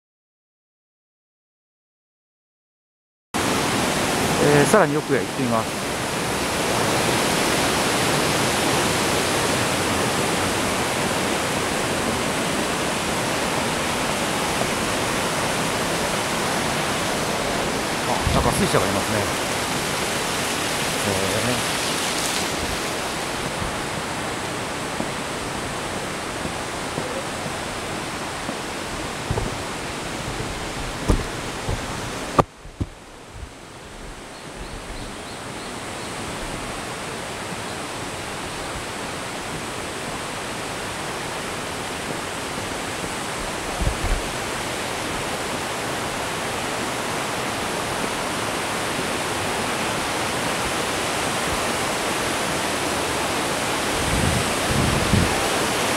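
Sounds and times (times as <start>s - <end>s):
water rushing from waterfall: 3.4s - 55.9s
low thumps: 25.9s - 34.2s.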